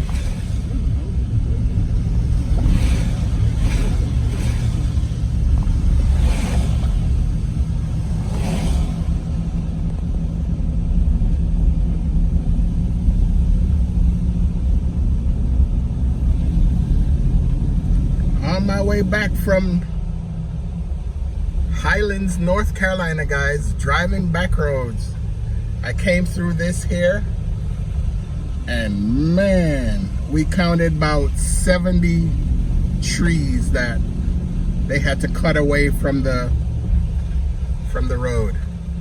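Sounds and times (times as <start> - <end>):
vehicle road and engine rumble: 0.0 - 39.0.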